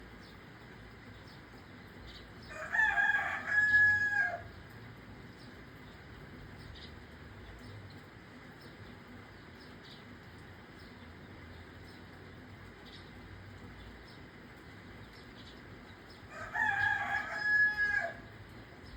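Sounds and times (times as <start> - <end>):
light rain hissing: 0.0 - 18.9
rooster crowing: 2.4 - 4.5, 16.3 - 18.4.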